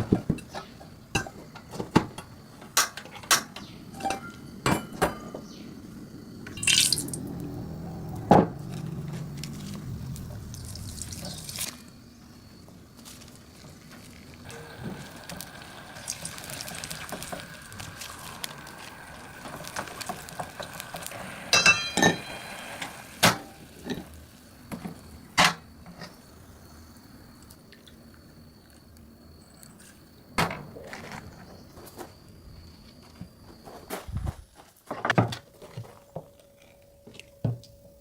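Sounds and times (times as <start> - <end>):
soft liquid hiss: 9.7 - 24.7.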